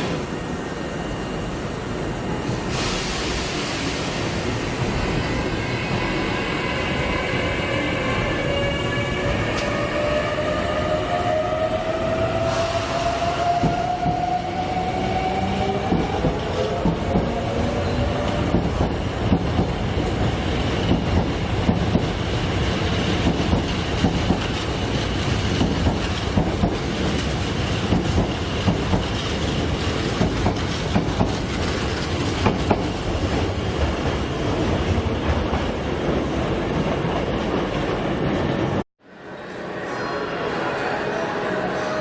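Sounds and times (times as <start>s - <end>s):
train rumble: 0.0s - 38.9s
train wheels clicking over rail joints: 22.9s - 34.2s.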